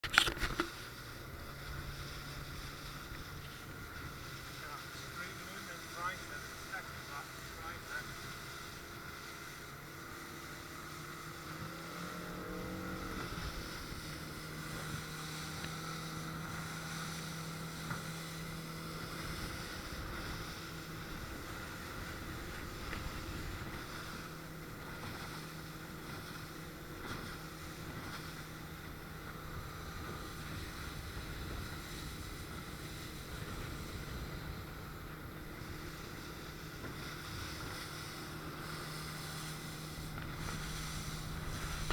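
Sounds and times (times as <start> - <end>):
outboard engine running: 0.0 - 41.9
wind buffeting microphone: 11.3 - 41.9.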